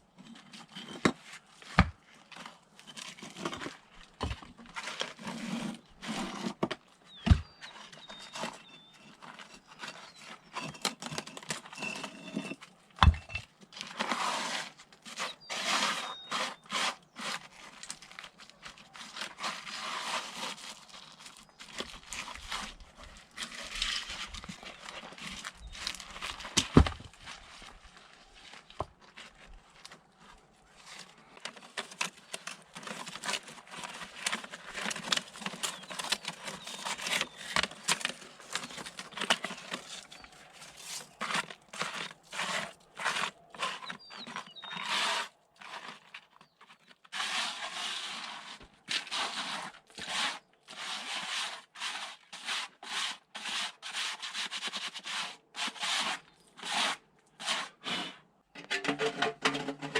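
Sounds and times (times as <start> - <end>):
scraping and rubbing strokes: 0.6 - 26.5, 32.3 - 59.9.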